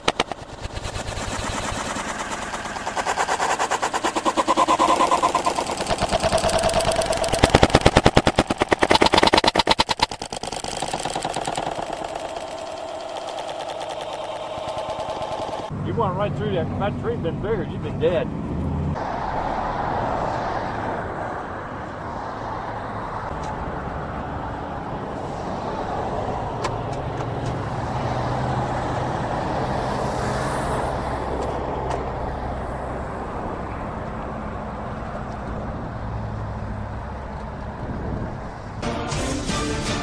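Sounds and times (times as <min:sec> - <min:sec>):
low hum: 0:00.0 - 0:16.8
road vehicle noise: 0:00.0 - 0:40.0.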